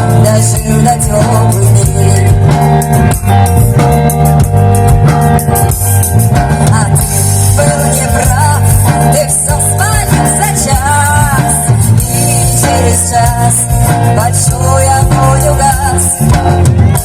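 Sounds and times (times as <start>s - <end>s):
person singing: 0.0s - 2.7s, 6.6s - 17.0s
band playing: 0.0s - 17.0s.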